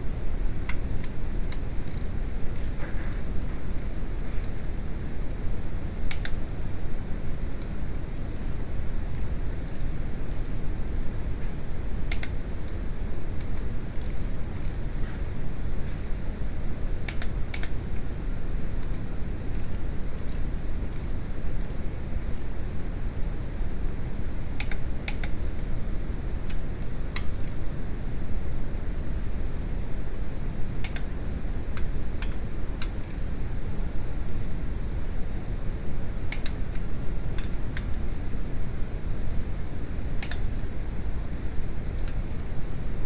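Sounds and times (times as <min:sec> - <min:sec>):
low rumbling background noise: 0:00.0 - 0:43.0
sharp clicks: 0:06.1 - 0:06.4, 0:12.1 - 0:12.4, 0:17.1 - 0:17.8, 0:24.6 - 0:25.4, 0:30.8 - 0:31.1, 0:36.3 - 0:36.8, 0:40.2 - 0:40.5.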